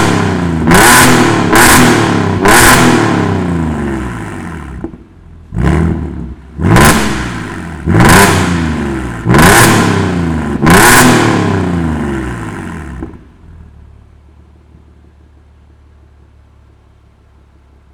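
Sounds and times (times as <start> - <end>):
car engine revving in sharp blips: 0.0 - 13.7
car engine idling: 0.0 - 17.9.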